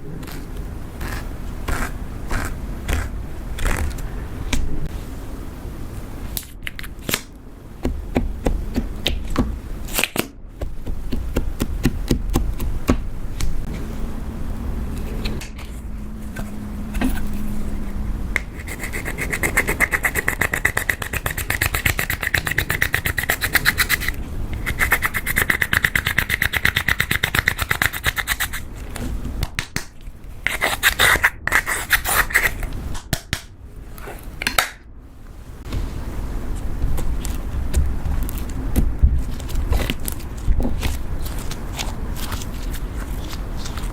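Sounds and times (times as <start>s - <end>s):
slime scraping and crackling: 38.1s - 43.9s.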